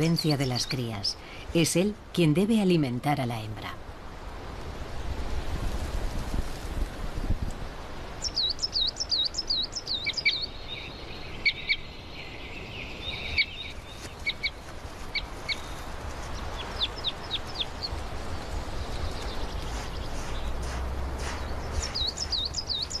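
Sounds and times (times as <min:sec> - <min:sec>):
small birds chirping: 0:00.0 - 0:02.9, 0:08.0 - 0:23.0
low outdoor hiss: 0:00.0 - 0:23.0.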